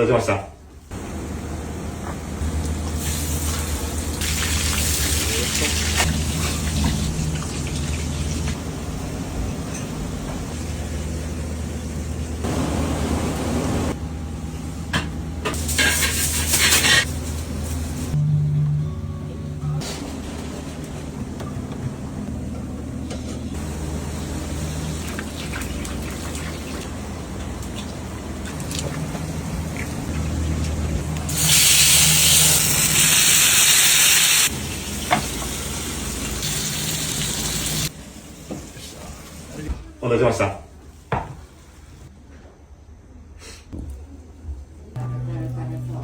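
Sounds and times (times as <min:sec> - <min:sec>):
low steady hum: 0:17.1 - 0:25.9, 0:44.0 - 0:46.0
food sizzling hiss: 0:31.3 - 0:37.9
steady low hum: 0:44.0 - 0:46.0.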